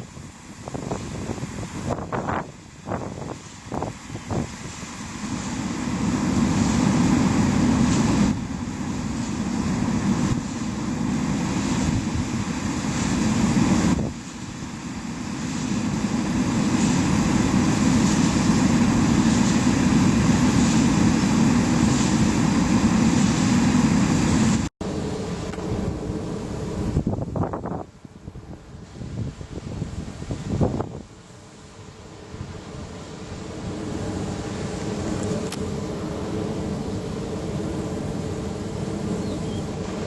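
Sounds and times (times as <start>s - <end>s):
wind buffeting microphone: 0.0s - 31.4s.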